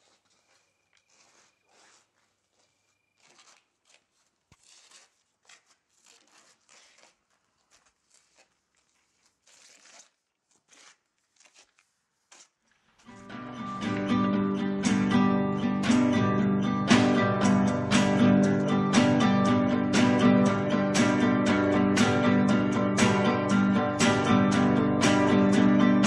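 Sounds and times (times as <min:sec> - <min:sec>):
footsteps scuffing on paving: 0:00.0 - 0:13.4
acoustic guitar music: 0:13.0 - 0:26.0.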